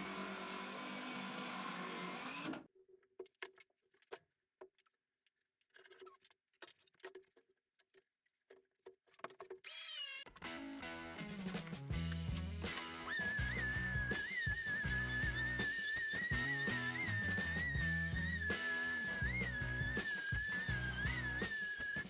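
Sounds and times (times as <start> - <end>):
motor running: 12.5 - 22.0
warbling whistle: 12.9 - 22.0.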